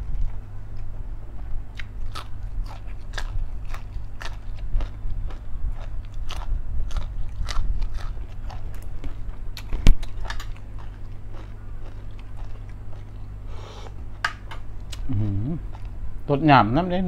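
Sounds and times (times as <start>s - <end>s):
crunchy chewing of raw vegetable: 1.7s - 14.2s, 14.8s - 16.0s.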